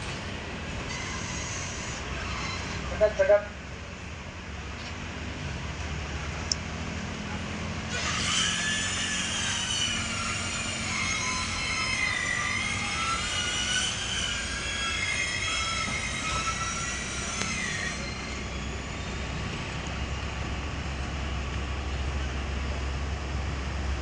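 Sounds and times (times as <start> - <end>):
crane engine drone: 0.0 - 24.0
high wavering whine: 8.0 - 22.7.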